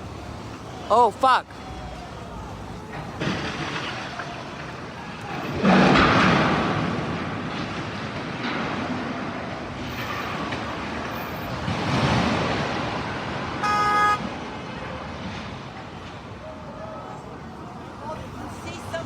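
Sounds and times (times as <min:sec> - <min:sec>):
city traffic noise: 0:00.0 - 0:19.0
crane crashing down: 0:02.7 - 0:16.4.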